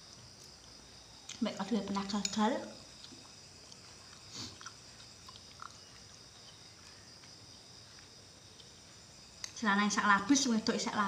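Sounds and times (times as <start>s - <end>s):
faint chewing: 0.0s - 9.6s.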